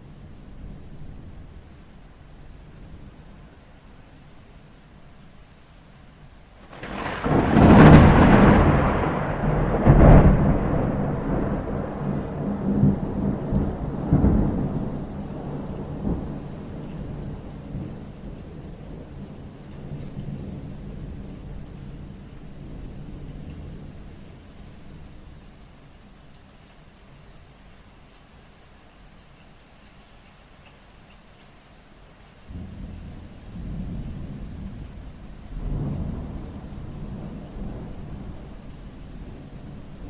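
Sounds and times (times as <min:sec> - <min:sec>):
rain: 0:00.0 - 0:40.0
thunder: 0:06.6 - 0:23.9, 0:32.5 - 0:40.0.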